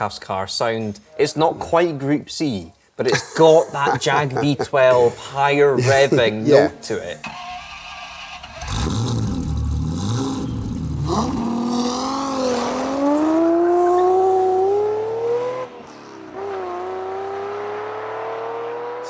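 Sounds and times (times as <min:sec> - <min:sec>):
car engine accelerating: 0:07.4 - 0:19.0.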